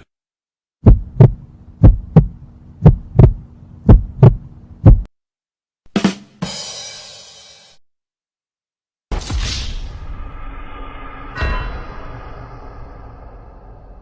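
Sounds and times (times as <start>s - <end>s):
heartbeat thumps: 0.8s - 5.1s
short hit: 9.1s - 14.0s.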